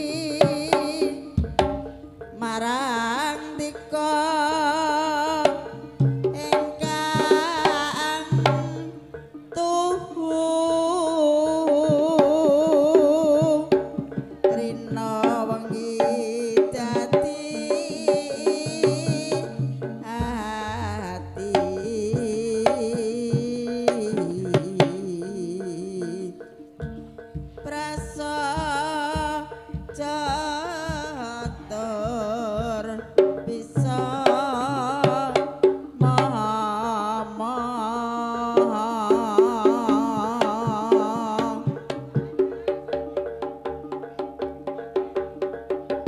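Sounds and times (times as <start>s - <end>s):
hand drums beating: 0.0s - 46.0s
wavering vibrato melody: 0.0s - 46.0s.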